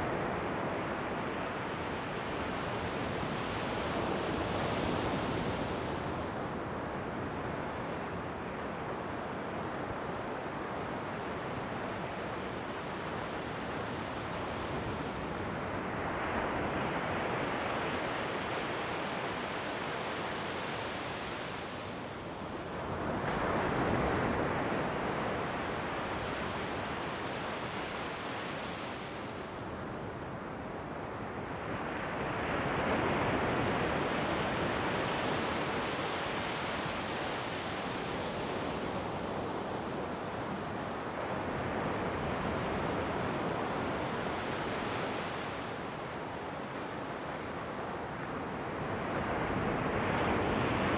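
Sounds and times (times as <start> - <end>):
ocean waves breaking on shore: 31.2 - 50.9.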